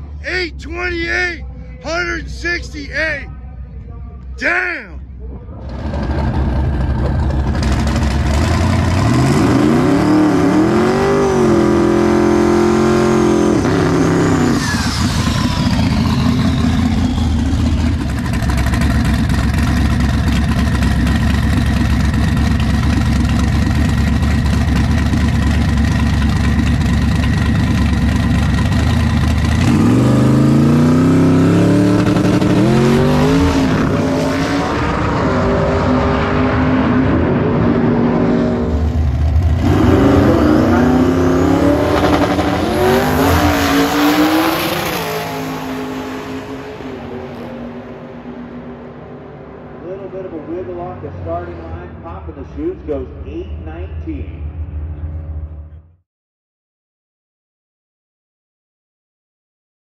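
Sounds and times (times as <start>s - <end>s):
drag race car engines at full throttle: 4.2s - 55.9s.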